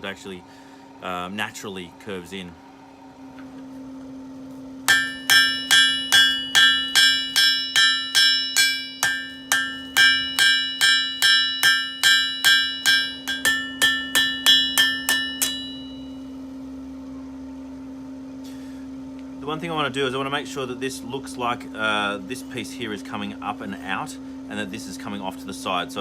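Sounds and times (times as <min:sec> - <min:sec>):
hammer blows on an anvil: 0:04.9 - 0:16.3.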